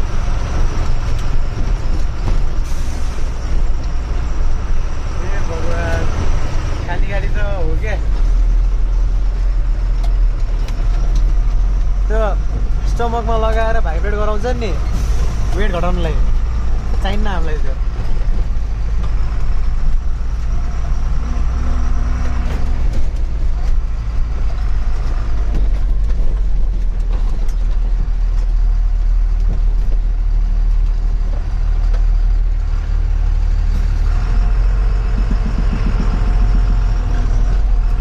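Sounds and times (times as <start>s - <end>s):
truck knocks and rattles: 0.0s - 5.2s, 5.8s - 38.0s
truck engine and road rumble: 0.0s - 38.0s.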